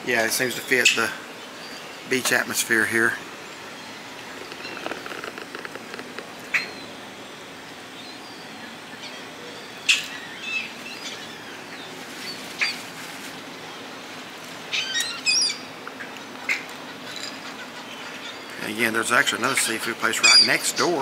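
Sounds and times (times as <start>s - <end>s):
steady background hiss: 0.0s - 21.0s
bird calls: 0.4s - 13.9s, 14.7s - 21.0s
bird chattering calls: 2.6s - 6.9s, 16.4s - 20.9s.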